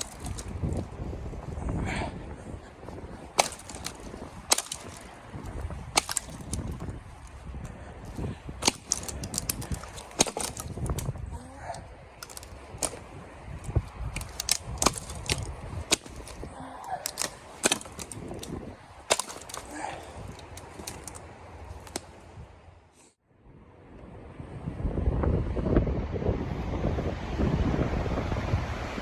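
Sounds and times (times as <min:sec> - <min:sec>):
dry wood cracking: 0:00.0 - 0:22.3
low rumble of handling: 0:00.0 - 0:22.7.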